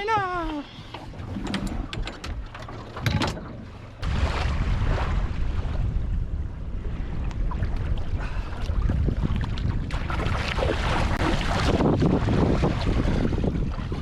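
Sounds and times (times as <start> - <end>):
wind buffeting microphone: 4.0 - 14.0.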